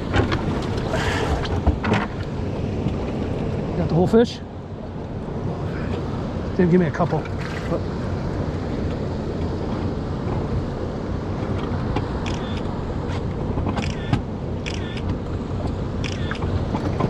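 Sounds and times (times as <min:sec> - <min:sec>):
boat engine running: 0:00.0 - 0:03.6, 0:05.7 - 0:10.6.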